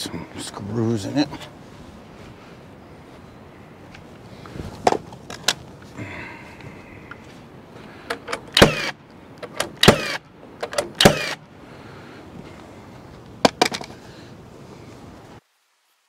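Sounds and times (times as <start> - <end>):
sharp clicks: 8.0 - 11.4
power drill whining: 8.6 - 8.9, 9.8 - 10.2.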